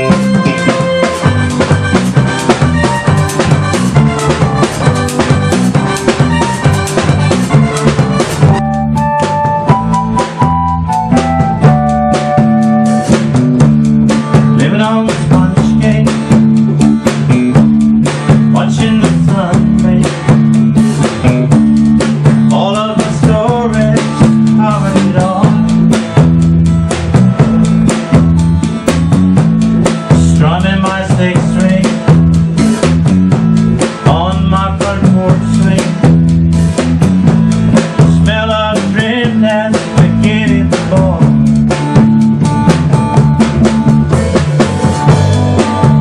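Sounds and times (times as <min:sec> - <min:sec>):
melody line: 0:00.0 - 0:13.6
bass guitar: 0:00.0 - 0:46.0
drum kit beat with rimshots: 0:00.0 - 0:46.0.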